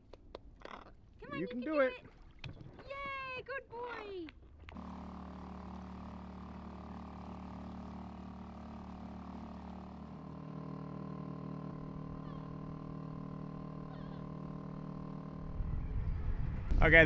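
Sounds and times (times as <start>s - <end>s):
steady motor hum: 4.7s - 17.0s.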